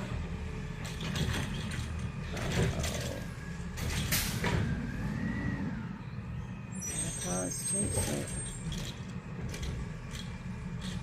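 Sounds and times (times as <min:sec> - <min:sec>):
garbage truck engine rumbling: 0:00.0 - 0:11.0
metallic clanks and creaks: 0:00.8 - 0:04.8, 0:06.8 - 0:11.0
rising and falling squeal: 0:04.3 - 0:09.1.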